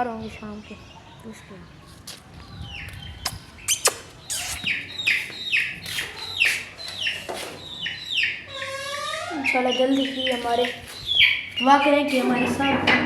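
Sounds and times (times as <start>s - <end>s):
small bird chirping: 2.4s - 12.4s.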